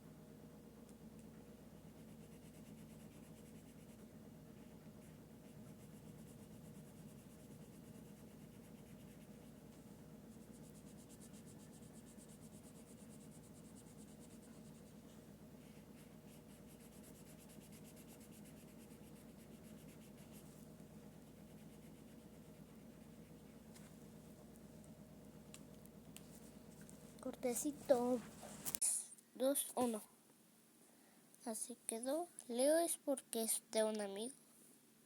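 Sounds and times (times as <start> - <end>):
steady low hum: 0.0 - 32.7
marker scribbling on foam: 1.9 - 4.0, 5.0 - 9.6, 10.2 - 15.0, 15.7 - 23.6.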